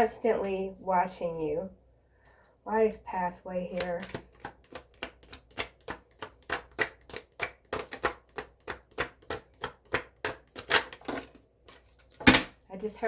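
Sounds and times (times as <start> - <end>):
cards being shuffled: 3.7 - 12.4.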